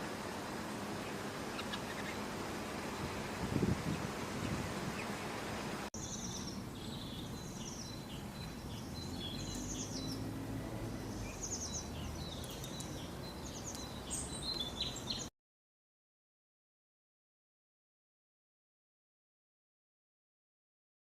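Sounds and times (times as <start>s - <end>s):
outdoor background noise: 0.0s - 15.3s
small birds chirping: 0.9s - 15.3s.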